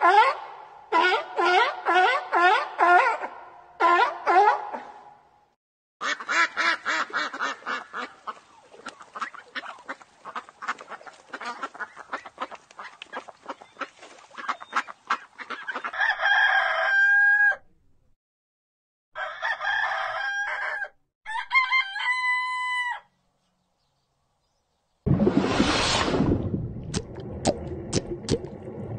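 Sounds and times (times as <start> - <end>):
rooster crowing: 15.9 - 17.7, 19.2 - 23.1.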